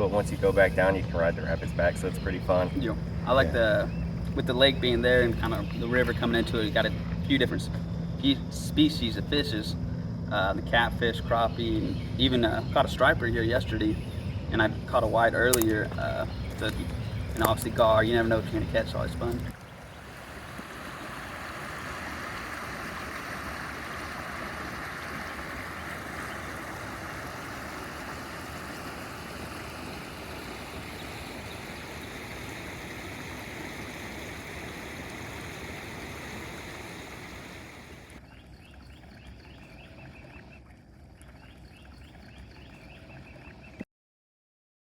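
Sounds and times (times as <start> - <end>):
water rushing over rapids: 20.0 - 38.2.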